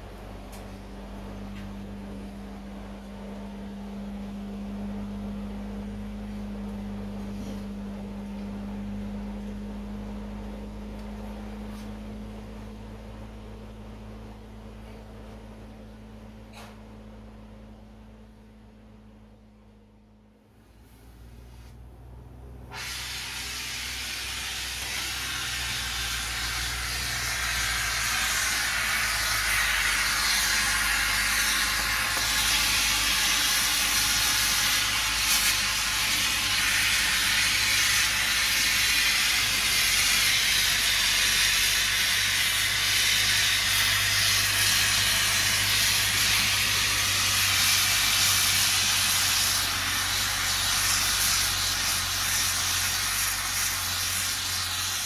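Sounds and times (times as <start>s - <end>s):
gas burner flame hissing: 22.7s - 55.0s.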